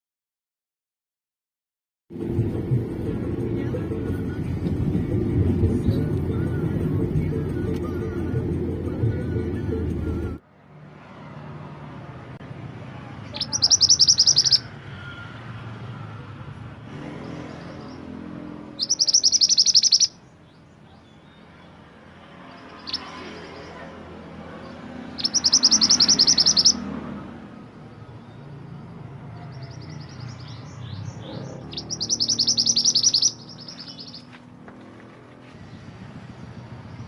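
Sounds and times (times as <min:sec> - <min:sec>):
low background rumble: 0:02.2 - 0:10.4
songbird chattering: 0:13.2 - 0:14.7, 0:18.8 - 0:21.7, 0:22.5 - 0:23.8, 0:25.0 - 0:26.8, 0:29.4 - 0:34.4.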